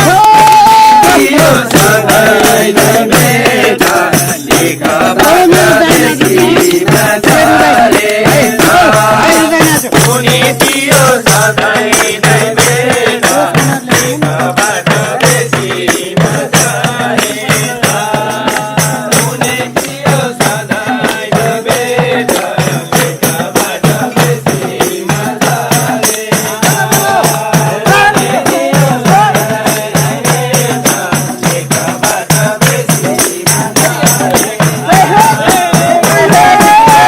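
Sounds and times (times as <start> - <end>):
rattling hand percussion: 0.0 - 37.0.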